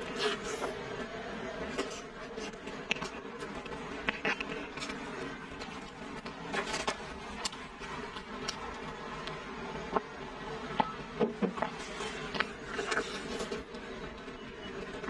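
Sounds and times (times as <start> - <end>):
steady buzzing hum: 0.0 - 15.0.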